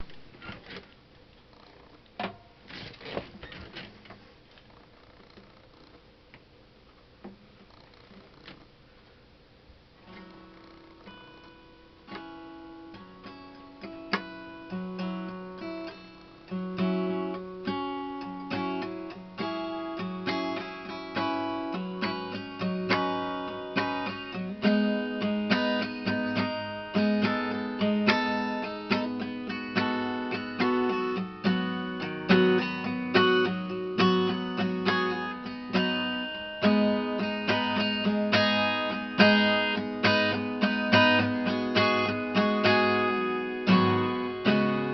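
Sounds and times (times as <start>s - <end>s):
acoustic guitar strumming chords: 10.0s - 44.9s.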